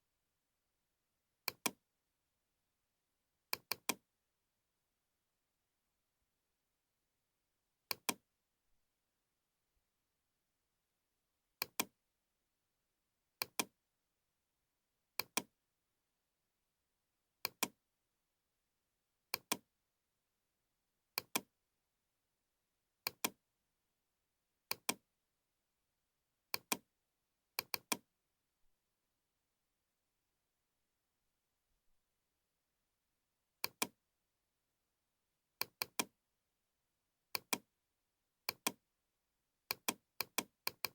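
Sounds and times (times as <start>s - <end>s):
computer mouse clicking: 11.6s - 11.9s, 13.4s - 13.7s, 17.4s - 17.7s, 19.4s - 19.6s, 21.2s - 21.5s, 23.1s - 23.4s, 26.6s - 26.8s, 27.6s - 28.0s, 33.6s - 33.9s, 35.6s - 36.1s, 37.4s - 37.6s, 38.5s - 38.8s, 39.7s - 40.9s.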